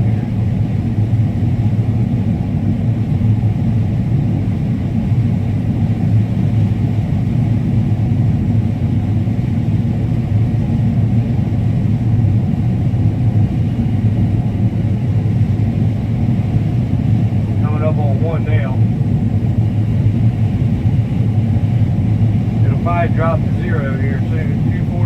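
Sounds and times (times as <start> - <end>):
combine harvester rumbling: 16.0 - 25.0.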